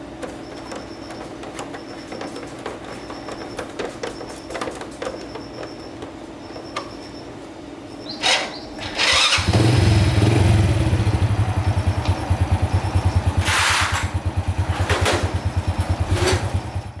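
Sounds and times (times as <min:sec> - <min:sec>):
motorbike engine idling: 0:08.1 - 0:17.0.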